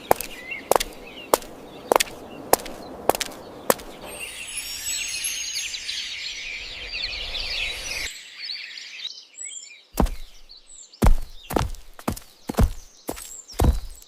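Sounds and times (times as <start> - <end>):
many small birds chirping: 0.0 - 14.0
sharp thud: 10.0 - 14.0.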